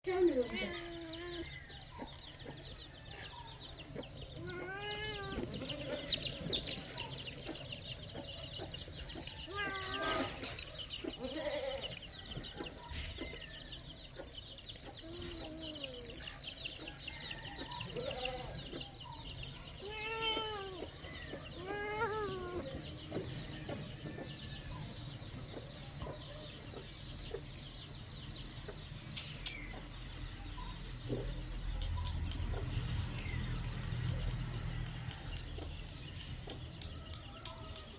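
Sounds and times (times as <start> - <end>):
drawn-out animal calls: 4.2 - 7.9, 9.2 - 12.8.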